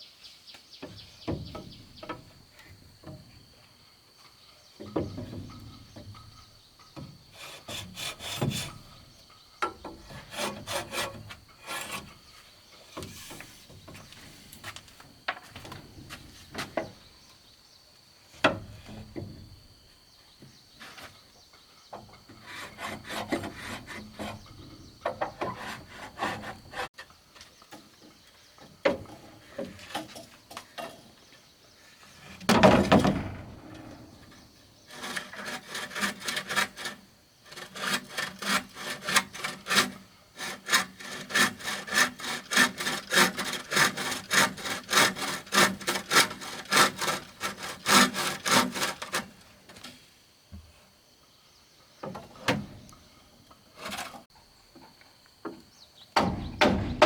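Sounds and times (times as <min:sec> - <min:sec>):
hand saw cutting wood: 0:07.3 - 0:08.9, 0:10.0 - 0:12.3, 0:22.3 - 0:26.9, 0:34.8 - 0:49.4, 0:53.8 - 0:54.3.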